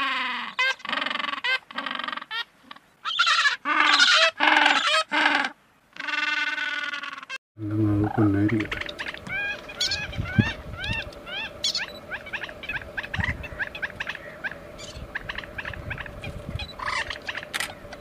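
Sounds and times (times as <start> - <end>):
birds honking: 0.0 - 18.0
faint steady hum: 7.6 - 18.0.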